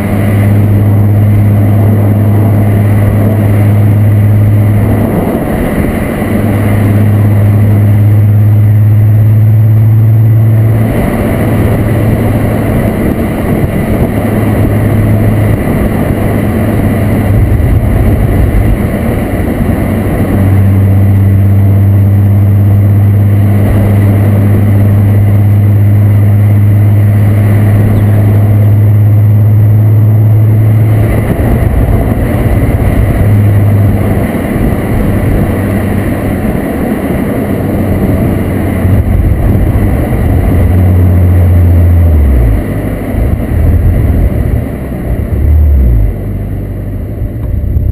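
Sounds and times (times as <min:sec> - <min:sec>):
car engine exhaust note: 0:00.0 - 0:47.9
road noise: 0:00.0 - 0:47.9.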